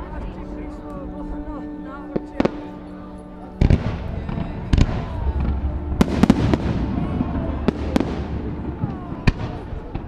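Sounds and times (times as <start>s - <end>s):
low rumble: 2.6s - 10.0s.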